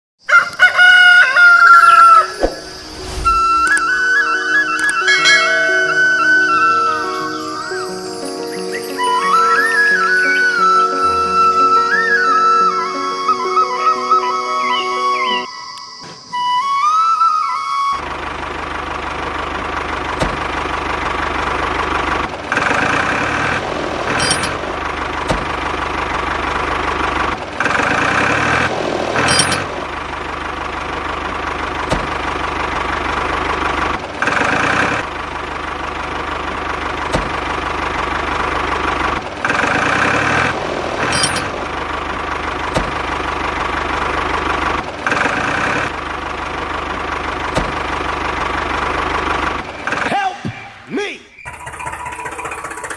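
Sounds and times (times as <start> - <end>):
small tractor engine droning: 0.2 - 52.9.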